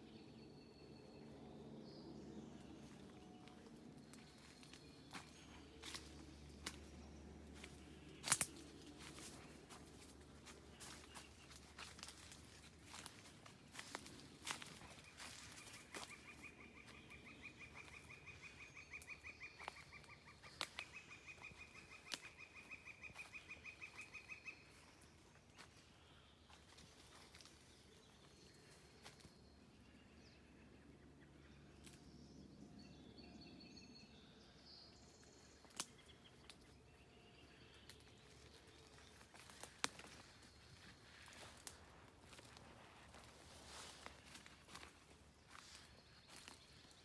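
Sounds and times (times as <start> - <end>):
footsteps on forest path: 1.8 - 29.4, 35.2 - 47.0
faint bird calls: 7.6 - 29.2.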